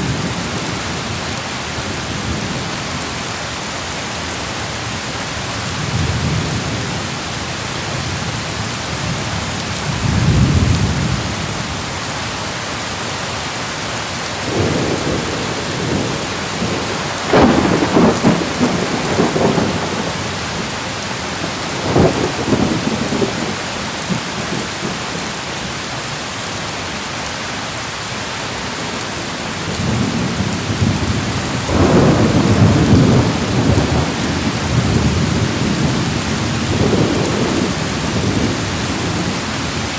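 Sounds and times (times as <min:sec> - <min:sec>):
rain hissing: 0:00.0 - 0:39.9
thunder rolling: 0:14.5 - 0:20.6, 0:21.4 - 0:24.6, 0:29.8 - 0:39.3.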